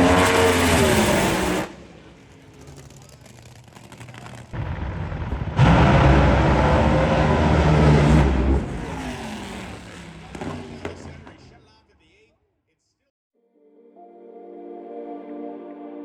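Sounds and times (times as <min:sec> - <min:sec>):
car engine accelerating: 0:00.0 - 0:11.4.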